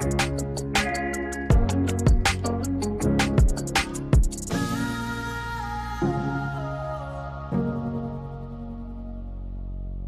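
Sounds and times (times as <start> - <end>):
background music with drum beat: 0.0 - 4.6.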